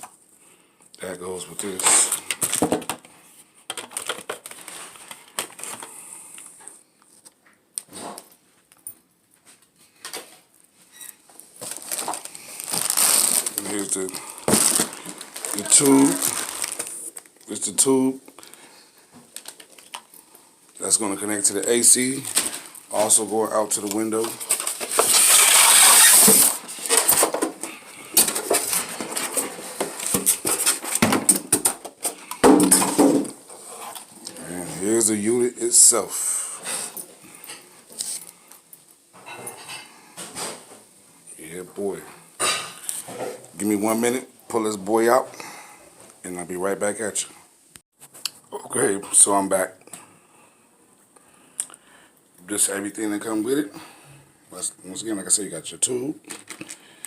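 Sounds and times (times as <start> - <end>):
packaging rustling and crinkling: 1.6 - 7.4, 11.2 - 34.2, 56.2 - 56.9.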